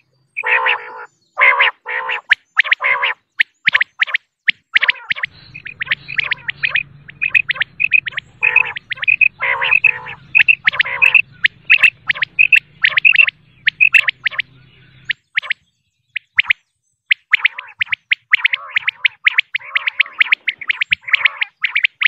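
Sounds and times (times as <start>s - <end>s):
quail calling: 0.0s - 22.0s
faint low hum: 4.8s - 15.2s.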